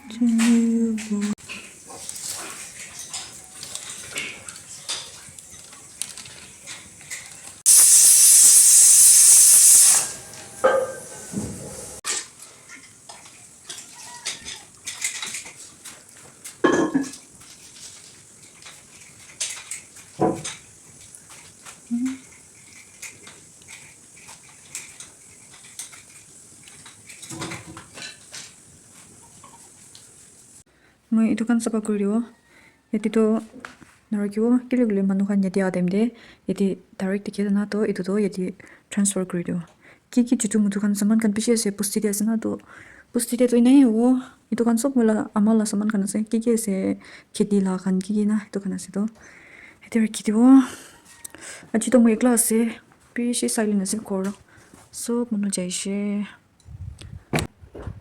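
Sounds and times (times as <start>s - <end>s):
loud hiss: 7.7s - 12.0s
kitchenware clinking: 10.0s - 13.0s, 16.6s - 17.4s.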